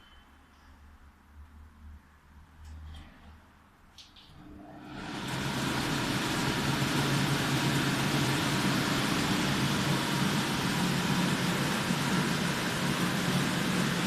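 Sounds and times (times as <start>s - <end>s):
kitchen extractor fan running: 4.4s - 14.0s.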